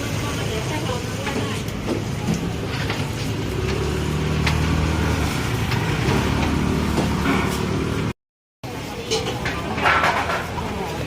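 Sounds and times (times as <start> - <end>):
street noise: 0.0 - 11.0
vehicle engine humming: 1.8 - 8.2.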